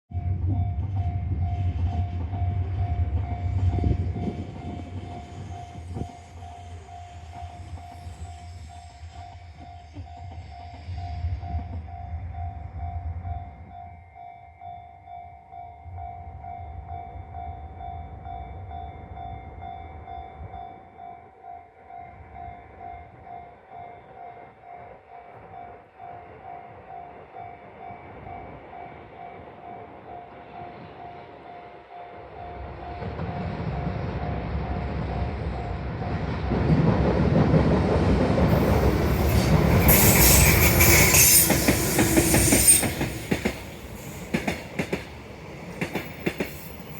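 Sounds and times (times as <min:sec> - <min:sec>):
freight train passing: 0:00.1 - 0:46.9
wheels clacking over rail joints: 0:36.1 - 0:46.9.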